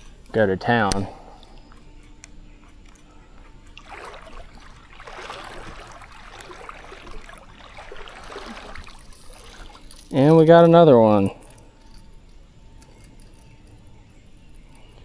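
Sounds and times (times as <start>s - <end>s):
light clicking: 0.0s - 3.9s
creek water splashing: 2.9s - 11.6s.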